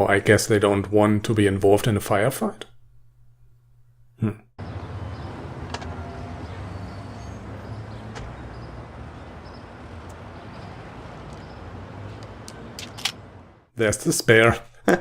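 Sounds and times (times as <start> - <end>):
vehicle engine and road noise: 4.6 - 13.7.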